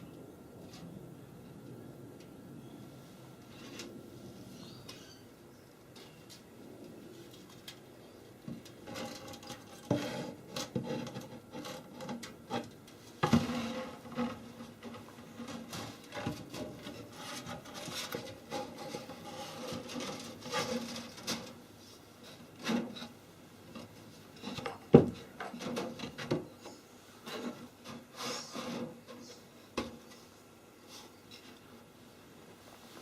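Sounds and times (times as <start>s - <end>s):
wooden parts scraping: 8.5s - 21.6s.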